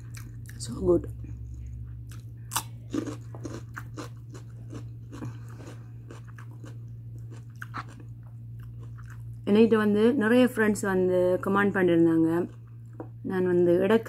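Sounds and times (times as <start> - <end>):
steady low hum: 0.0 - 14.0
cucumber crunching: 2.1 - 9.3.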